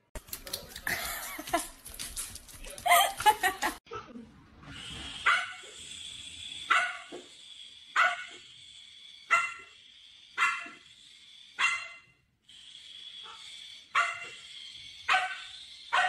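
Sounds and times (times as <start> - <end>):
dog barking: 5.2 - 5.6, 6.7 - 7.2, 8.0 - 8.4, 9.3 - 9.8, 10.4 - 10.8, 11.6 - 12.0, 13.3 - 14.4, 15.1 - 16.0.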